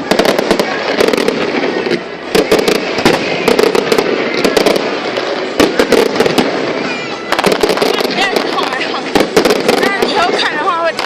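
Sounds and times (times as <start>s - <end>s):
fireworks bangs and crackles: 0.0s - 11.0s
fireworks hiss: 0.0s - 11.0s.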